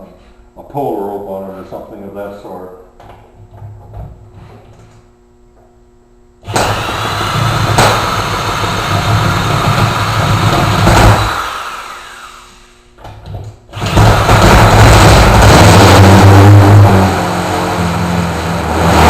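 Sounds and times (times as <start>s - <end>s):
drill motor cranking: 6.5s - 12.7s, 13.7s - 18.9s.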